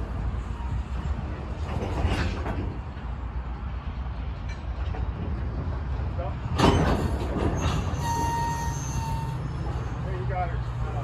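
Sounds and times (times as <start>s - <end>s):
freight train rolling slowly: 0.0s - 11.0s.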